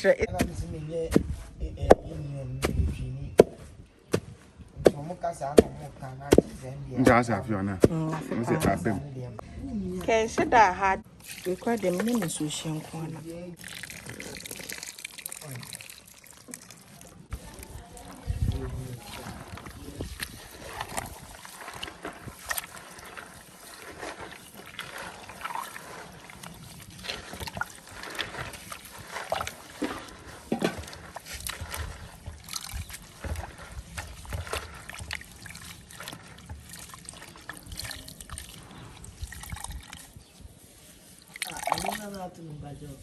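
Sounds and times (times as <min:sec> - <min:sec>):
liquid sloshing and trickling: 0:11.1 - 0:42.9.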